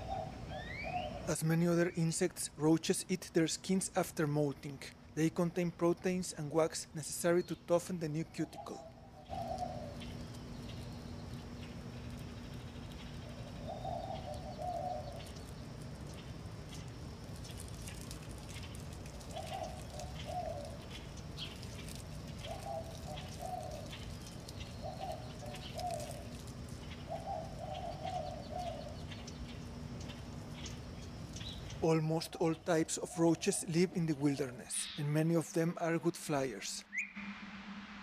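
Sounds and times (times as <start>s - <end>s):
bird cooing: 0.0s - 1.3s, 8.3s - 10.2s, 13.1s - 15.6s, 19.1s - 29.4s
steady low hum: 0.0s - 38.0s.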